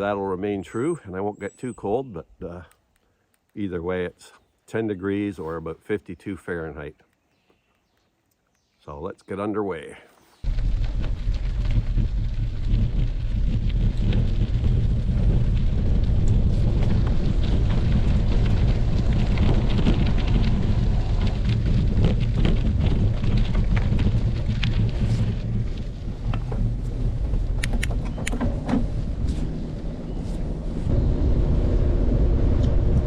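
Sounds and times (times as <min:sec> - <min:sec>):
sharp clicks: 0:02.4 - 0:03.7, 0:27.6 - 0:28.4
bicycle riding on road: 0:10.4 - 0:33.0
wind buffeting microphone: 0:10.4 - 0:33.0.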